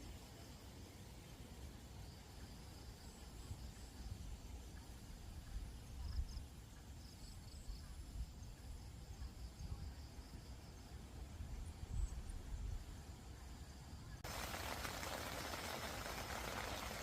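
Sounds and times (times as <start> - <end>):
low uneven rumble: 14.2 - 17.0.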